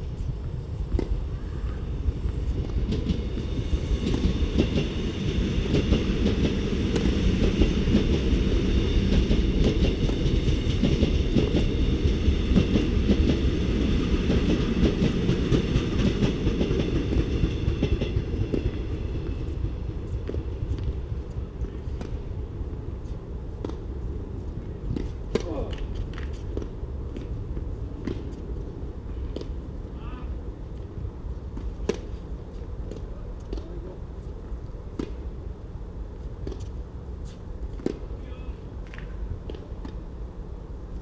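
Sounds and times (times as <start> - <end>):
train rumbling and clicking: 0.0 - 29.7.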